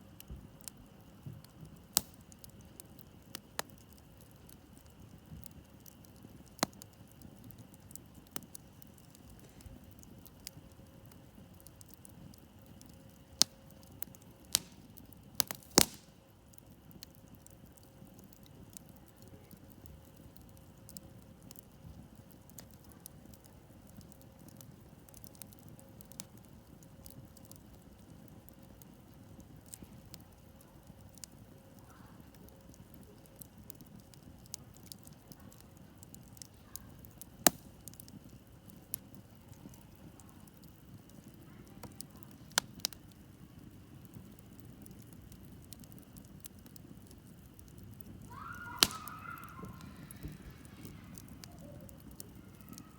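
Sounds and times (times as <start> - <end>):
wood campfire crackling: 0.0 - 52.9
fire pops: 0.1 - 52.9.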